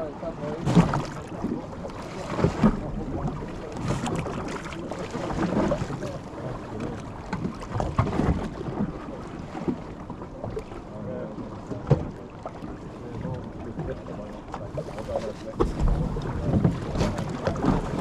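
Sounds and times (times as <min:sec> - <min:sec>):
water noise: 0:00.0 - 0:18.0
wind buffeting microphone: 0:14.6 - 0:18.0.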